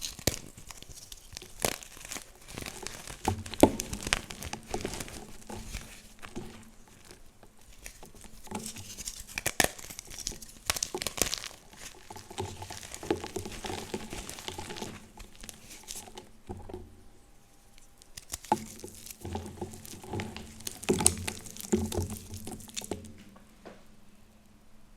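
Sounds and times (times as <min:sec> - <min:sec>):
chalk blocks crunching: 0:00.0 - 0:16.3, 0:17.7 - 0:23.2.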